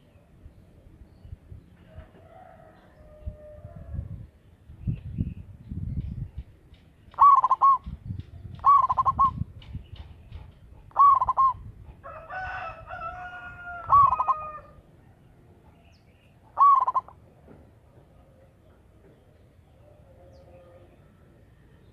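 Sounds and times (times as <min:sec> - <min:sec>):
rooster crowing: 0:01.9 - 0:04.1, 0:12.0 - 0:14.8
dove cooing: 0:07.1 - 0:09.5, 0:10.8 - 0:12.0, 0:13.8 - 0:14.8, 0:16.5 - 0:17.2, 0:19.8 - 0:21.2.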